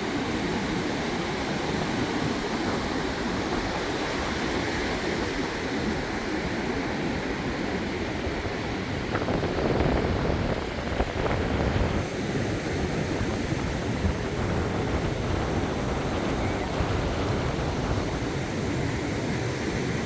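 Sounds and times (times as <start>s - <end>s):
small waves breaking on beach: 0.0s - 20.0s.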